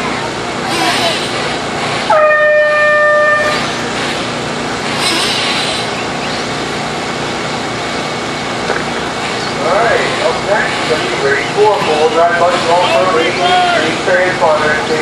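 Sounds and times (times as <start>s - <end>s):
steady track noise: 0.0s - 15.0s
steady horn-like tone: 2.1s - 3.8s.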